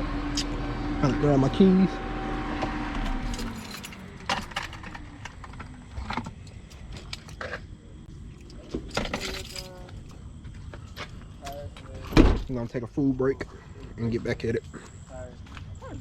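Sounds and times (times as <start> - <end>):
steady hum falling in pitch: 0.0 - 7.0
keys jangling: 3.2 - 4.9, 8.9 - 9.9.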